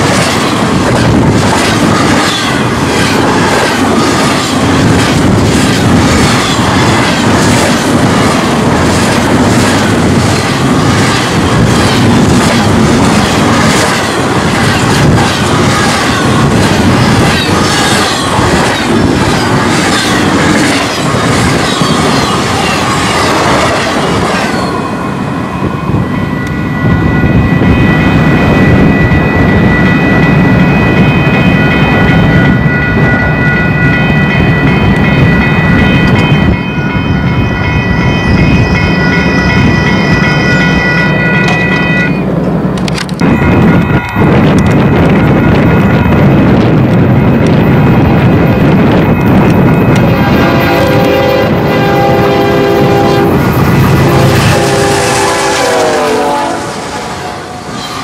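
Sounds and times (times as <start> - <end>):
train wheels clattering: 0.0 - 24.9
crossing bell ringing: 0.0 - 58.0
low train rumble: 0.0 - 58.0.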